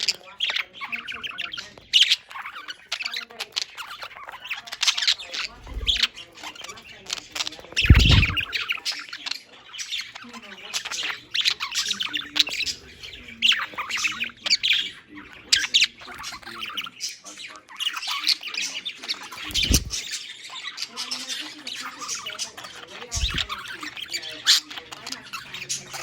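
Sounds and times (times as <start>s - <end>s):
budgerigars chattering and squawking: 0.0s - 26.0s
low thumps: 7.8s - 8.5s.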